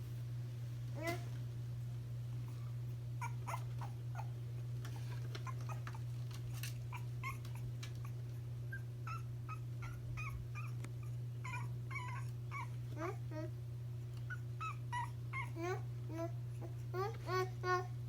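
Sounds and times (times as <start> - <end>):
steady low hum: 0.0 - 18.0
puppy whimpering: 3.2 - 13.5, 14.2 - 17.8.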